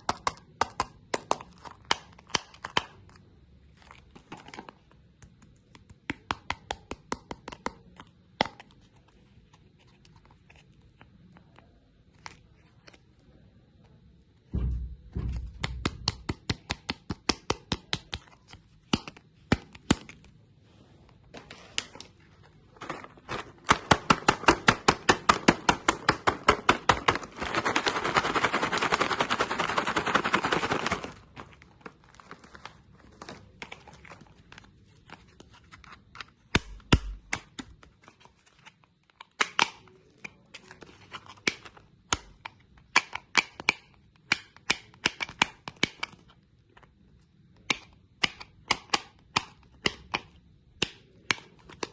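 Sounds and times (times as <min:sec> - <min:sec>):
hard candy crunching: 0:22.6 - 0:34.8.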